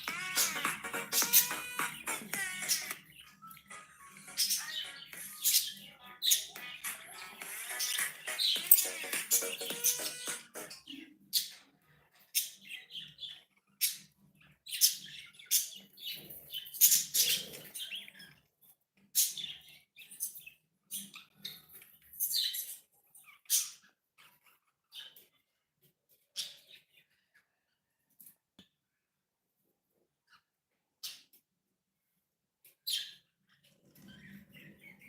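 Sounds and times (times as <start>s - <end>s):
parrot scratchy chirps: 0.0s - 10.8s.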